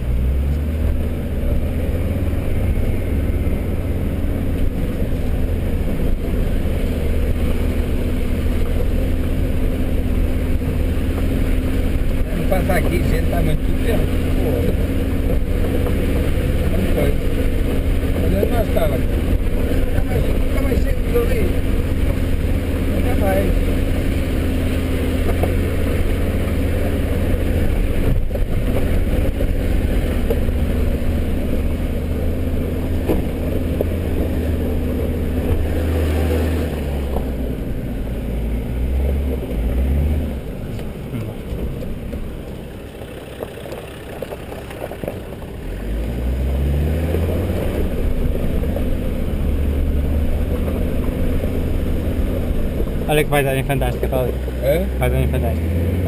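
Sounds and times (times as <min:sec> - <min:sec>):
car engine pulling at low speed: 0:00.0 - 0:56.0.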